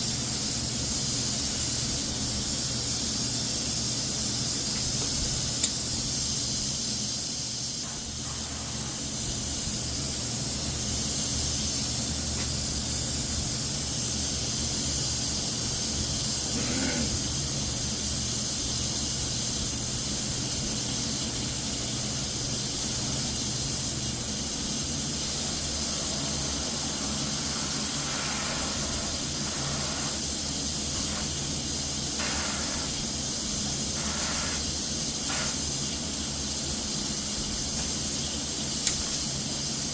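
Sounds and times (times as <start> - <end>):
spray gun hissing: 5.8 - 10.2, 23.2 - 39.3.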